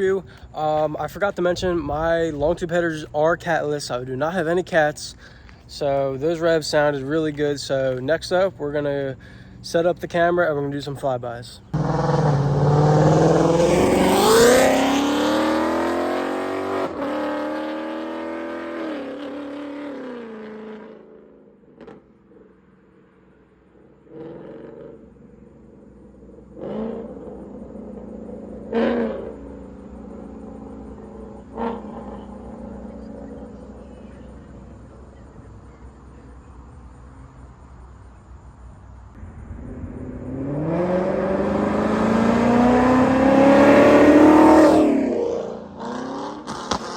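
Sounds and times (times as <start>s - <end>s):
car engine accelerating hard: 11.7s - 22.1s, 24.0s - 35.2s, 39.2s - 46.9s
distant engine revs: 11.7s - 22.4s, 23.9s - 38.1s, 39.1s - 46.9s.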